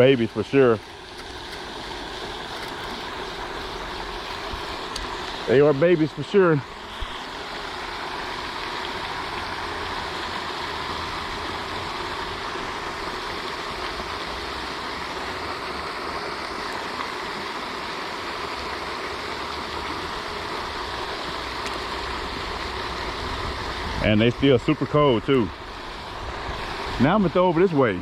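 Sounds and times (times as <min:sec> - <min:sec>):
fountain splashing: 0:00.0 - 0:28.0.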